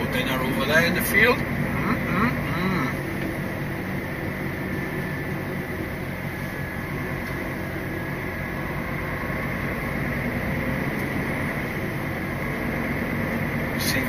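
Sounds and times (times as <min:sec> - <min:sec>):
lorry diesel engine drone: 0:00.0 - 0:14.0
road noise: 0:00.0 - 0:14.0.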